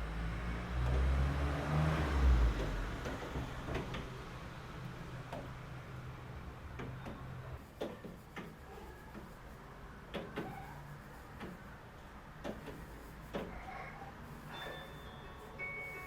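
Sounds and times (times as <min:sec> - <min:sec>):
light clicks and knocks: 0:06.7 - 0:09.4, 0:10.1 - 0:10.6, 0:11.3 - 0:11.7, 0:12.4 - 0:13.6.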